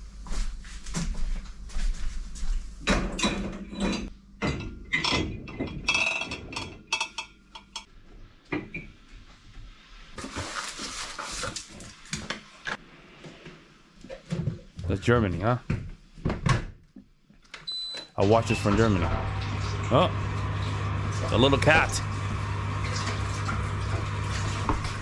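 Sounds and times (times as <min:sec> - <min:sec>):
dishes and utensils clattering: 0:02.9 - 0:07.9.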